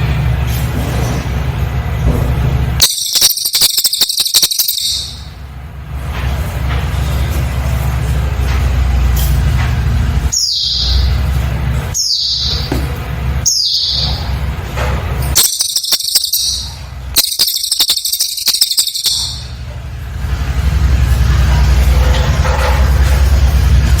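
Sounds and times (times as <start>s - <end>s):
bird singing with rattling trills: 2.8s - 5.5s, 10.3s - 14.6s, 15.2s - 19.8s.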